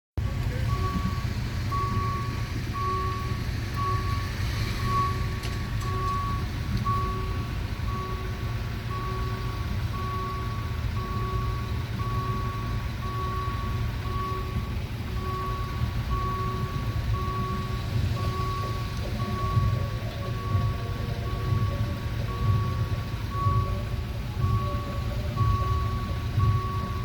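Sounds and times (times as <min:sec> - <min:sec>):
low engine rumble: 0:00.2 - 0:27.0
electronic warning beeps: 0:00.6 - 0:27.0.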